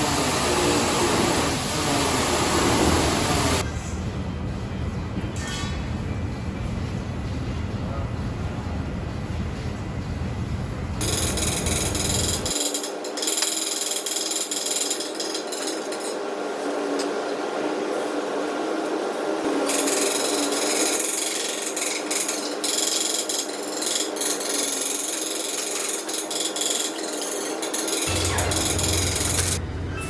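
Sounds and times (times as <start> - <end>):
power tool rasping: 0.0 - 3.6, 11.0 - 15.7, 19.7 - 29.6.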